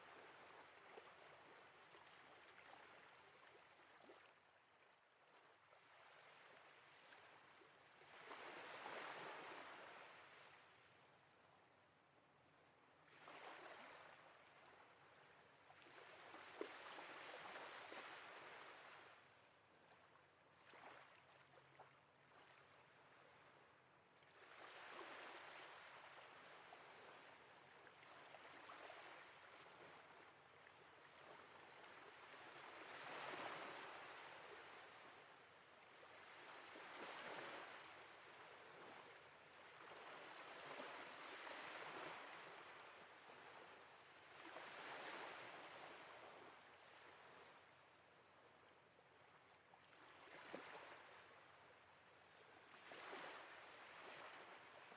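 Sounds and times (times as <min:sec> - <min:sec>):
faint sea waves: 0:00.0 - 0:54.9.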